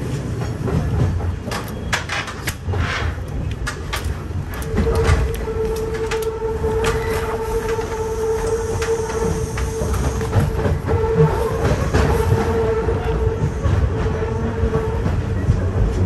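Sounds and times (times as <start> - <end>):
wheels clicking over rail joints: 0.0 - 12.5
electric train whine: 0.0 - 16.0.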